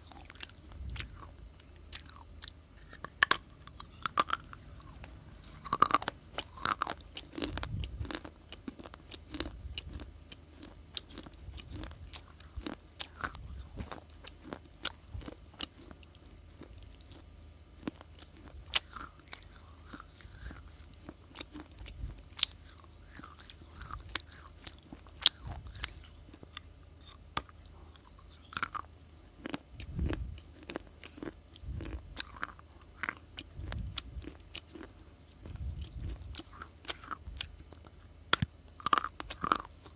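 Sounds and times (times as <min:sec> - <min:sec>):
dull chewing thuds: 0:00.0 - 0:28.8.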